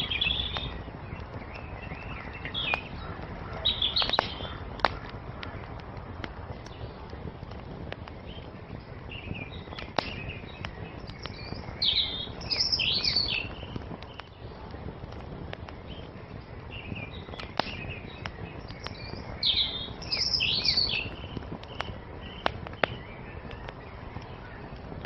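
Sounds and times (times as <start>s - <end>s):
songbird chirping: 0.0s - 7.2s, 8.0s - 14.6s, 15.8s - 24.9s
wood fire crackling: 0.0s - 25.0s.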